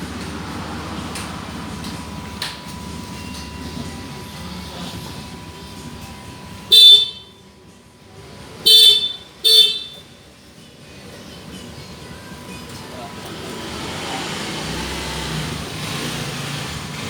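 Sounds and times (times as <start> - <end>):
vehicle horn toots: 6.7 - 7.4, 8.6 - 10.1.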